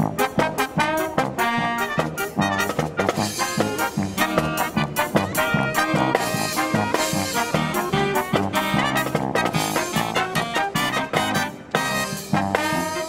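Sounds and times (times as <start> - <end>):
marching brass band playing: 0.0 - 13.0.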